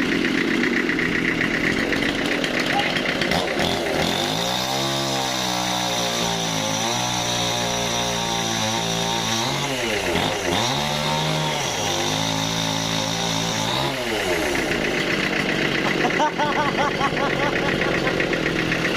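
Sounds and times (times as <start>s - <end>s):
sawmill saw cutting wood: 0.0s - 18.9s.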